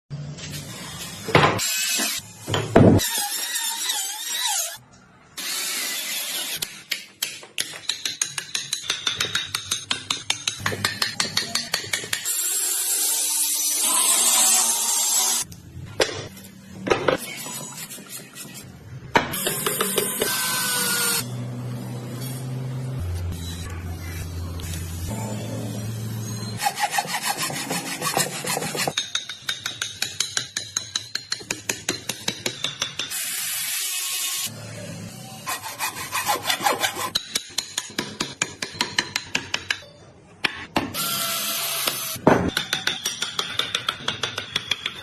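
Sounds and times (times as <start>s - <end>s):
power tool cutting wood: 12.3s - 15.5s, 19.4s - 21.3s.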